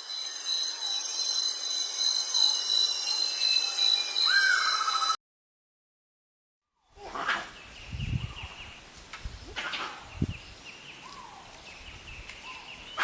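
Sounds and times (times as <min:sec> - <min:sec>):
birds chirping: 0:06.8 - 0:13.0.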